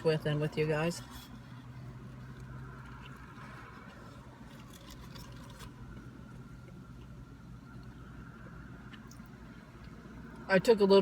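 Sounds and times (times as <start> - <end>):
low hum in car cabin: 0.0 - 11.0.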